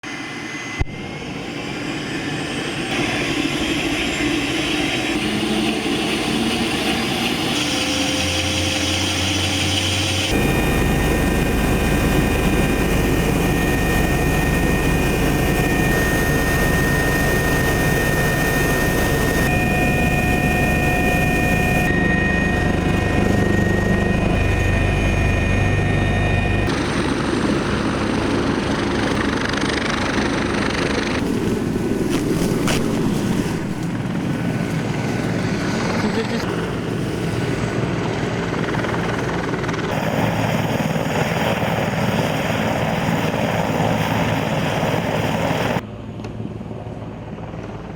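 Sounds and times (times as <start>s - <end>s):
helicopter engine and rotor: 0.0s - 47.9s.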